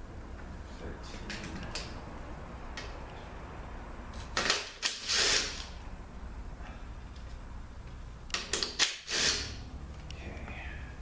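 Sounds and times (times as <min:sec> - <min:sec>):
ratchet clicking: 0:04.3 - 0:05.7, 0:08.4 - 0:09.6.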